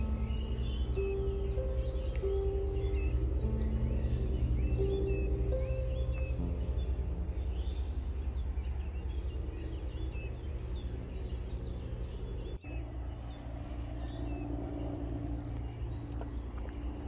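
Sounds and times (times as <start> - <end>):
birds chirping: 0.0 - 17.0
low background rumble: 0.0 - 17.0.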